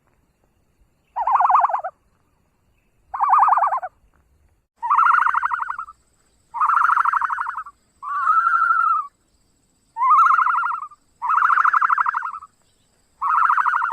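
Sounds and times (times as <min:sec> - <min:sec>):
ostrich calling: 0:01.2 - 0:01.9, 0:03.1 - 0:03.9, 0:04.8 - 0:05.9, 0:06.5 - 0:09.1, 0:10.0 - 0:12.5, 0:13.2 - 0:13.9.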